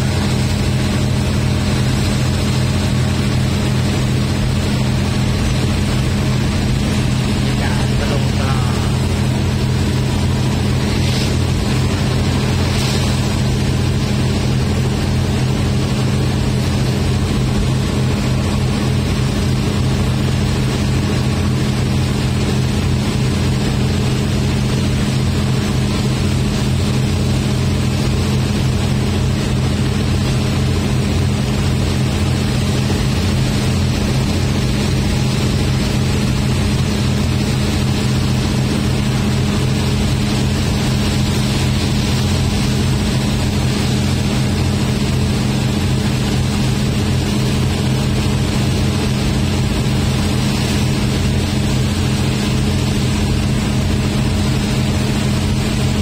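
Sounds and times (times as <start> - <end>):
low steady drone: 0.0 - 56.0
train rumbling: 4.7 - 16.1.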